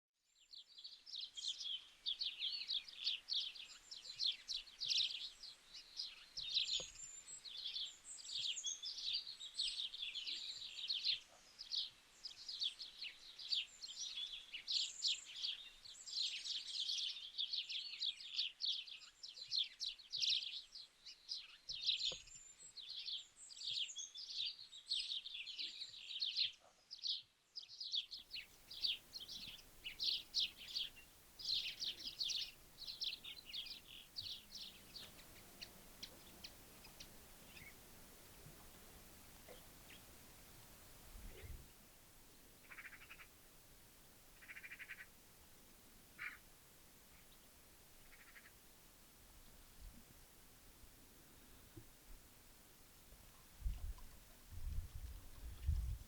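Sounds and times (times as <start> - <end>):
birds chirping and trilling: 28.3 - 41.8, 42.4 - 43.5, 44.3 - 45.2, 46.0 - 46.5, 47.1 - 48.6.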